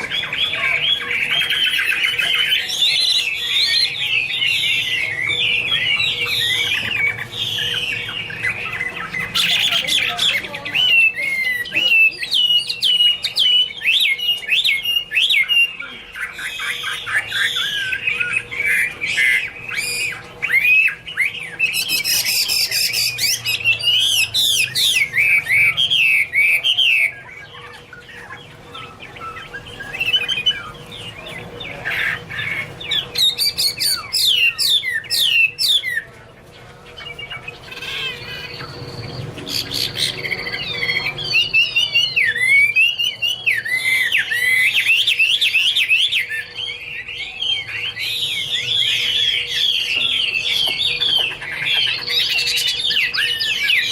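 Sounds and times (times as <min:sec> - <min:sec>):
bird singing whistled phrases: 0:00.0 - 0:31.2.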